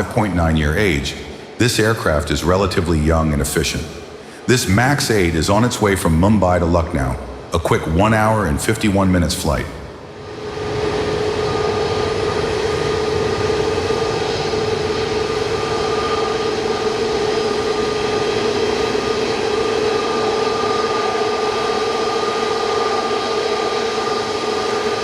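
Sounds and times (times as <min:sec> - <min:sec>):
jet engines running: 0:00.0 - 0:25.0
steady whine: 0:00.0 - 0:25.0.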